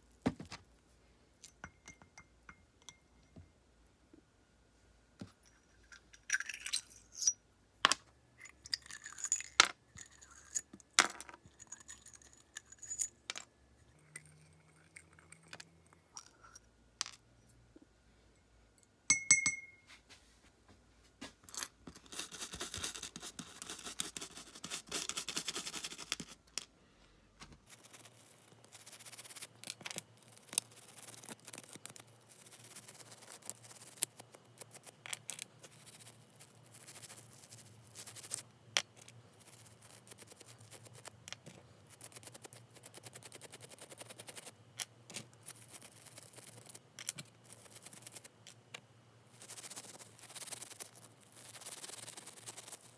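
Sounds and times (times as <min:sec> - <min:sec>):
metal parts clicking and clinking: 0:08.4 - 0:13.5.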